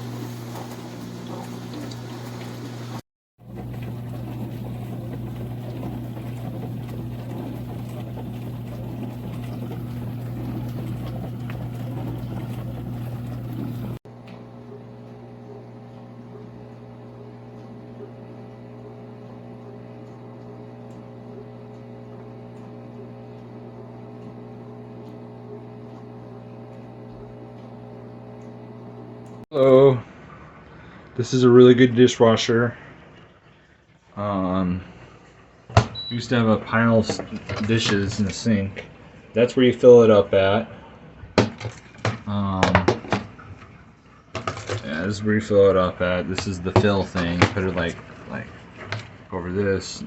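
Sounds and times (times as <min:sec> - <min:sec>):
water spraying inside dishwasher: 0:00.0 - 0:29.7, 0:36.0 - 0:40.6, 0:41.4 - 0:50.0
dishwasher motor hum: 0:00.0 - 0:31.0, 0:31.6 - 0:50.0.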